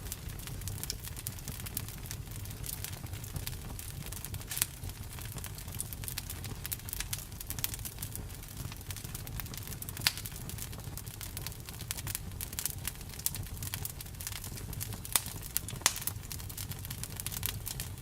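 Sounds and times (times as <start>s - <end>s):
fire popping: 0.0s - 18.0s
wood fire crackling: 0.0s - 18.0s.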